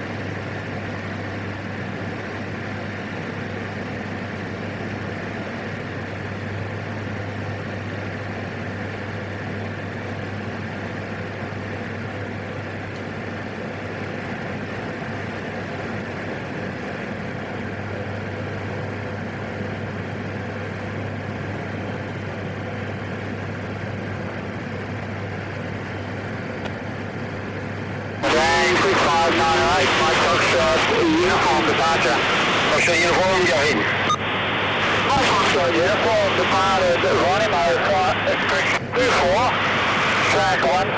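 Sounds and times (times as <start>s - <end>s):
turboprop engine drone: 0.0s - 40.9s
rushing air noise: 31.3s - 36.7s, 38.0s - 40.6s.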